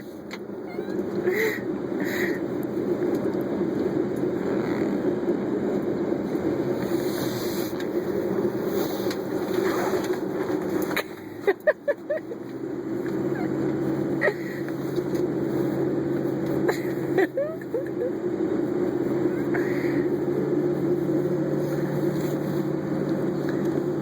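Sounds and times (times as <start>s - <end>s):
engine hum: 0.0s - 24.0s
short high squeaks: 0.6s - 1.1s.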